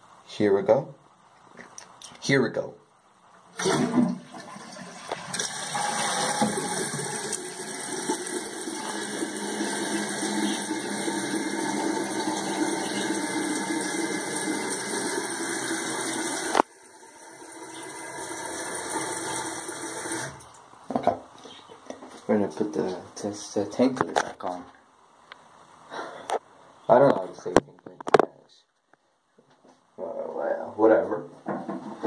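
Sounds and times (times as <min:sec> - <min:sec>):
toilet flush water rushing: 0:03.6 - 0:20.4
toilet tank refilling hiss: 0:03.6 - 0:20.4.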